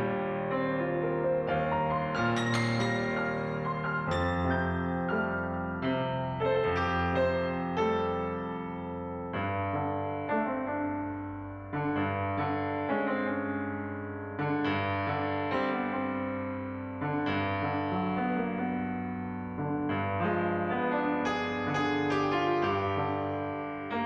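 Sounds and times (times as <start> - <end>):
calm piano chords: 0.0 - 24.0.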